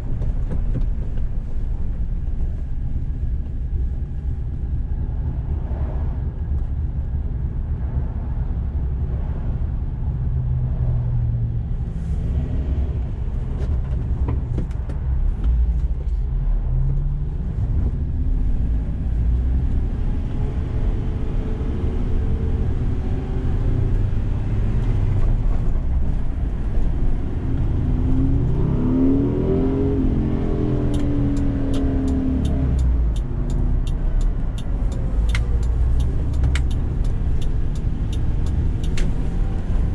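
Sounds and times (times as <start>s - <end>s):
road noise: 0.0s - 39.9s
quick ticks: 30.9s - 39.3s.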